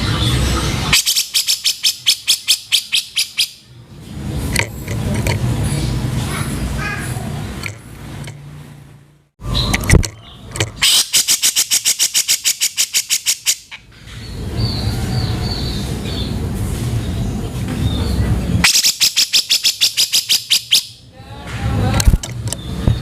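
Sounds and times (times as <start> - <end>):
bird rasping rattle calls: 0.0 - 3.6, 9.7 - 13.9, 18.6 - 21.0.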